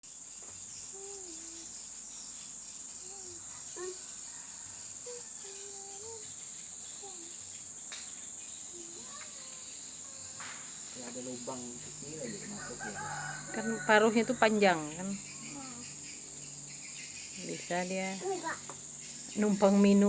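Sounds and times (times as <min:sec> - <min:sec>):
crickets droning: 0:00.0 - 0:20.0
low whistled calls: 0:08.4 - 0:20.0.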